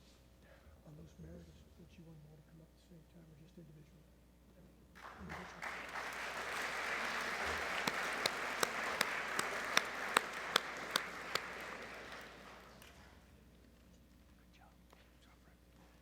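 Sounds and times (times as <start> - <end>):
sharp single claps: 5.0 - 13.0
audience applauding: 5.0 - 13.1.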